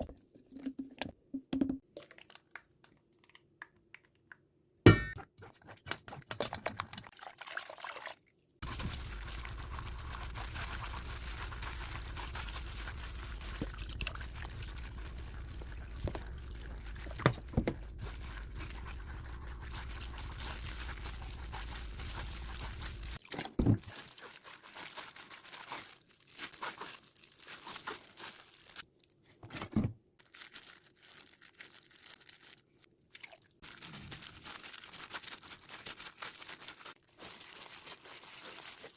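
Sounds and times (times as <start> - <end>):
liquid pouring: 6.8 - 22.0
crinkling handling sounds: 8.6 - 32.9, 33.6 - 38.9.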